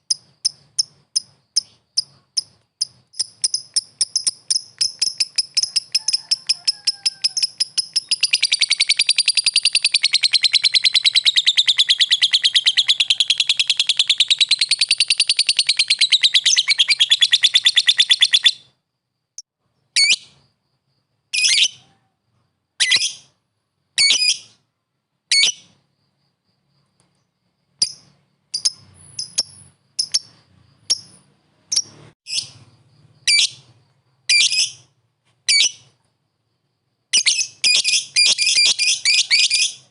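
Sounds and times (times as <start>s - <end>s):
lovebird chattering trill: 0.0s - 18.6s, 27.8s - 32.6s, 37.2s - 39.8s
short shrill bird calls: 3.2s - 18.7s, 37.2s - 39.9s.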